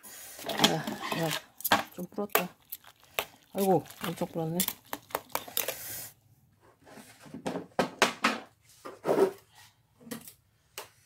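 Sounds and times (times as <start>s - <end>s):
chopsticks scraping and knocking in pot: 0.4s - 6.1s.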